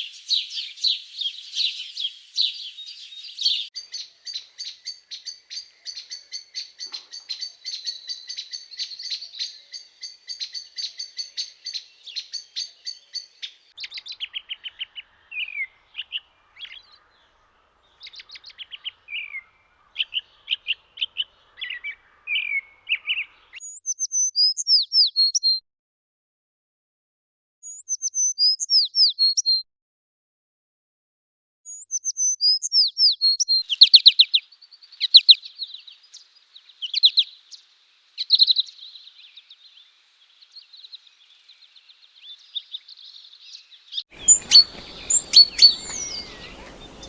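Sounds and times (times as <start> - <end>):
high whistled bird notes: 0.0 - 4.0, 44.2 - 47.0
small birds chirping: 0.0 - 25.4, 31.7 - 47.0.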